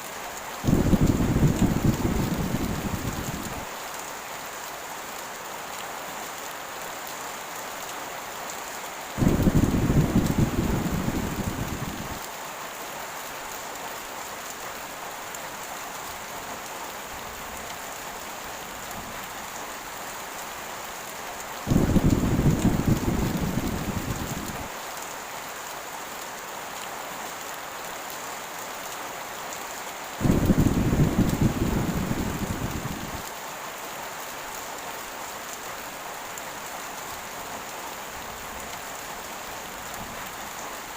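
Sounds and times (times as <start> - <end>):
heavy rain: 0.0 - 40.9
low thunder rumbles: 0.7 - 3.7, 9.2 - 12.2, 21.7 - 24.7, 30.2 - 33.2.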